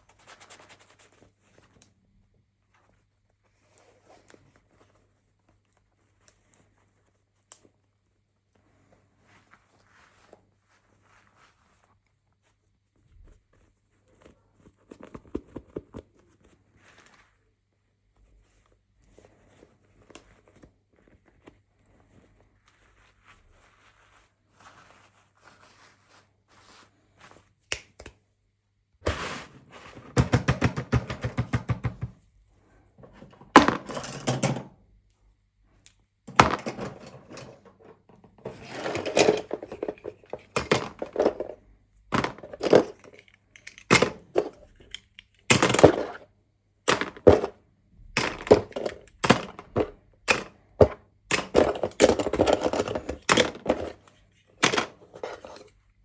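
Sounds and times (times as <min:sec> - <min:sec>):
plastic rattling: 0:29.1 - 0:32.2, 0:33.0 - 0:34.7, 0:36.3 - 0:46.2, 0:46.9 - 0:47.6, 0:48.2 - 0:55.7
plastic toys knocking and clicking: 0:30.0 - 0:32.3, 0:33.0 - 0:34.8, 0:36.3 - 0:46.2, 0:46.9 - 0:55.7.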